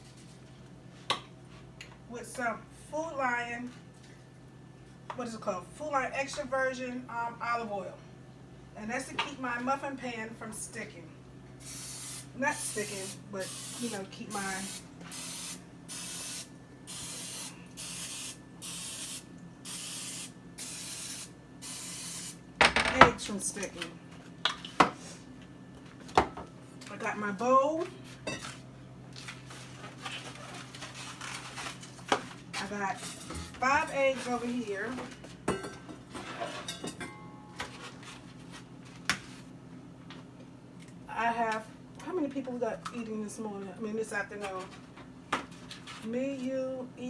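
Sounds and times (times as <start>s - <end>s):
cooking spray hissing: 11.6s - 22.4s
kitchen things clicking and knocking: 22.6s - 25.0s.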